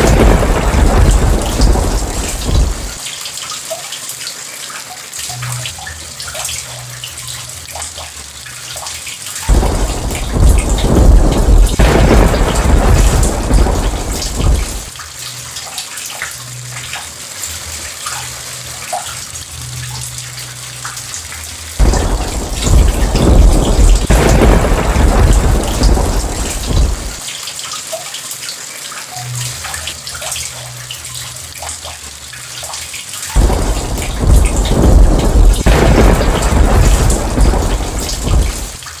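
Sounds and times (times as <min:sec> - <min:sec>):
rolling thunder: 0:00.0 - 0:03.0, 0:09.5 - 0:15.0, 0:21.8 - 0:27.2, 0:33.4 - 0:38.9
steady rain: 0:00.0 - 0:39.0.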